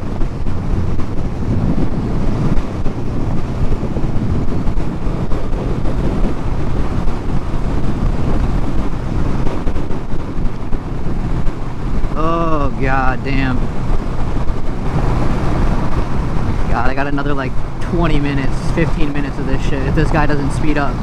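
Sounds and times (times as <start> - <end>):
motorcycle engine droning: 0.0 - 21.0
wind rushing over microphone: 0.0 - 21.0.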